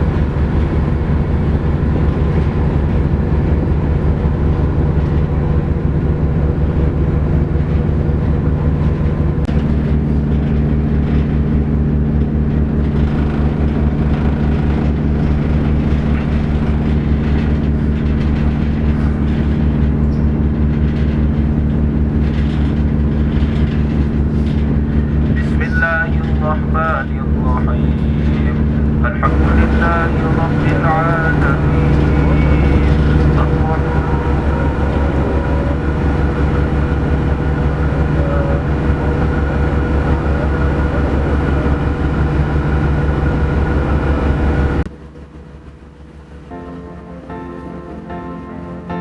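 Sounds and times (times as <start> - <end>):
ship diesel engine throbbing: 0.0 - 49.0
steady higher hum: 0.0 - 49.0.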